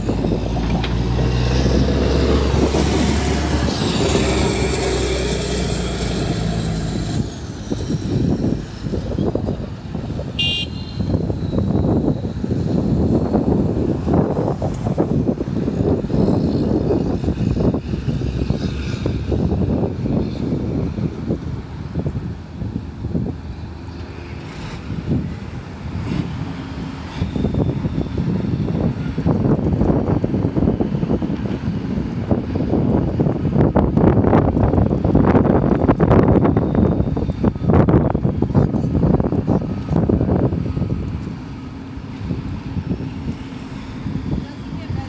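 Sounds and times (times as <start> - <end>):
diesel construction machinery running: 0.0 - 45.0
wind buffeting microphone: 0.0 - 45.0
short high beep: 10.4 - 11.1.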